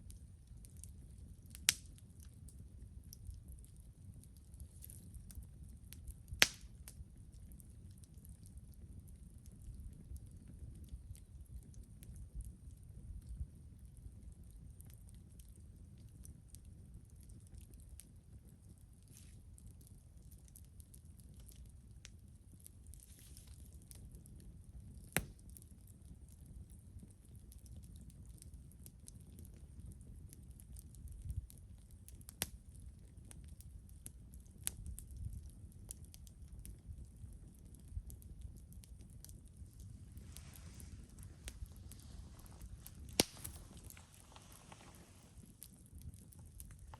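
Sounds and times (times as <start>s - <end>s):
campfire crackling and popping: 0.0s - 46.9s
low steady rumble: 37.0s - 46.9s.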